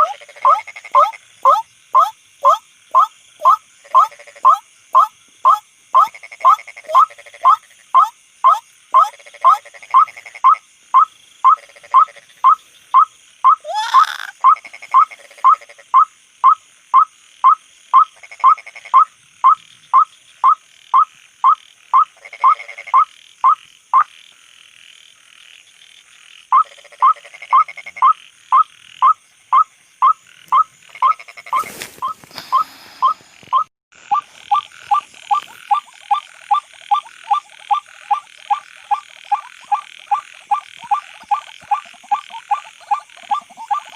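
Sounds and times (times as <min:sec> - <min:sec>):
waterhen calling: 0:00.0 - 0:15.1, 0:26.6 - 0:43.9
night insects trilling: 0:00.0 - 0:43.9.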